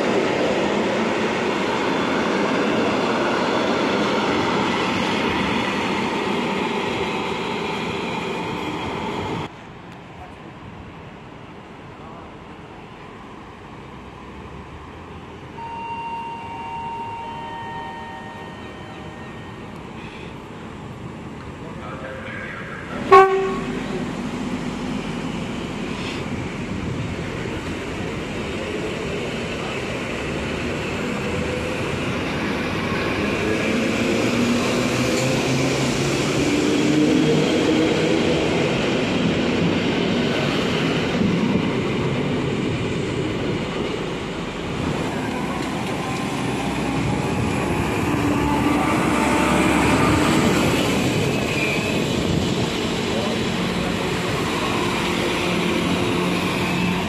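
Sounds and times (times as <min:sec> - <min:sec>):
train wheels rumbling on rails: 0:19.6 - 0:57.0.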